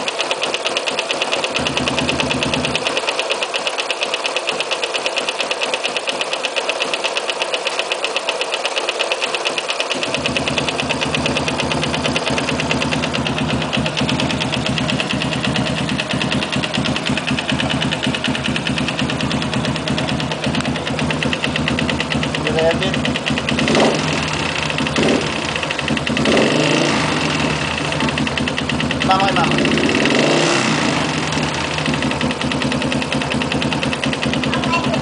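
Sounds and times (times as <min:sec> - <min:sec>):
motorcycle engine knocking: 0:00.0 - 0:35.0.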